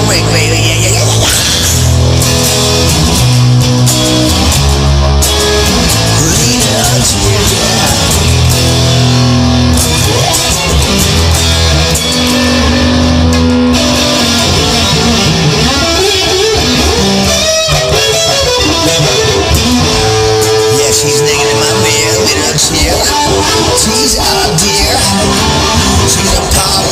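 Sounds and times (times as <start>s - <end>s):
bass line: 0.0s - 26.9s
electric guitar with bent notes: 0.0s - 26.9s.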